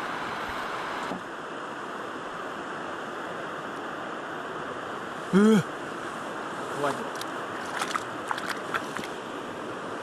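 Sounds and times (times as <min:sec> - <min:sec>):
man vocalizing: 0:05.3 - 0:05.7.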